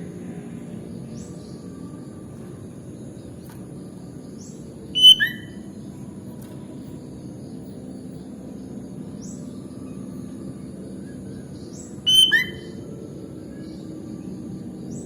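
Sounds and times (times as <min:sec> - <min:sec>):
bird chirping loudly: 0:05.0 - 0:05.6, 0:12.0 - 0:12.8
faint high chirps: 0:05.0 - 0:05.7, 0:12.0 - 0:13.0.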